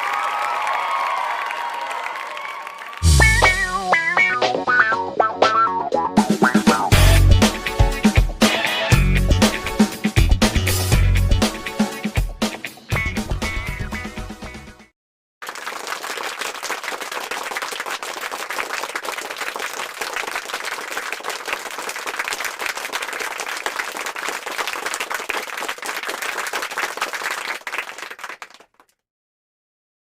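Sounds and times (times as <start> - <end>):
crowd applauding: 0.0 - 4.3, 15.4 - 28.9.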